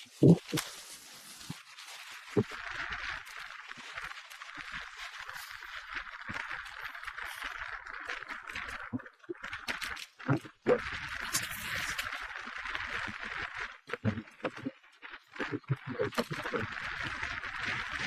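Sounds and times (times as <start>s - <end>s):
bicycle rattles and clicks: 2.5s - 13.7s.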